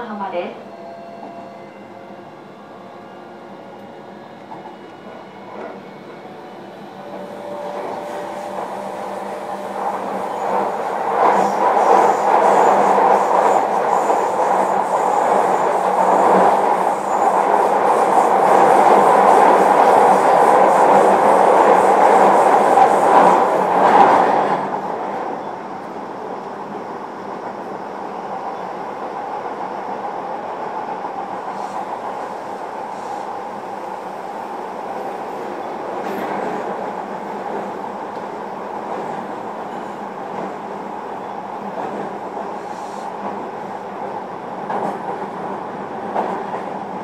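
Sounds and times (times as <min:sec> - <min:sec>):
train wheels rumbling on rail: 0:01.0 - 0:47.0.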